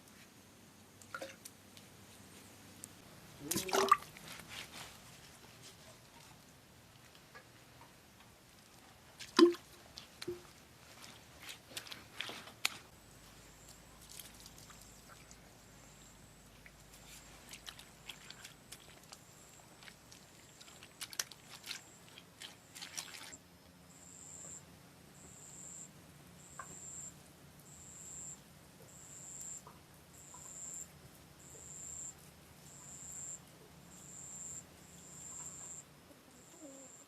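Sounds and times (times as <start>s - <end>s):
faint low hum: 0.0s - 37.0s
insect chirping: 21.5s - 37.0s.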